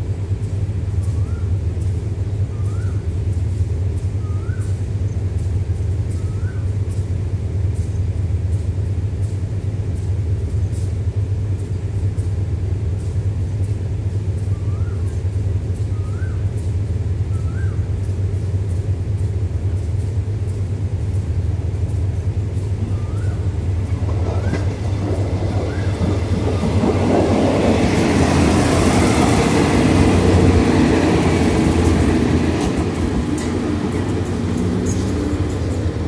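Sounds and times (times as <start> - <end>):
diesel train passing: 0.0 - 36.0
low hum of standing train: 0.0 - 36.0
wheel clicks over rail joints: 18.0 - 36.0.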